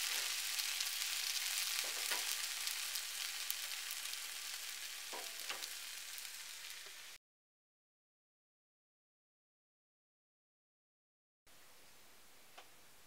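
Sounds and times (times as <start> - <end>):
food sizzling in a frying pan: 0.0 - 7.2.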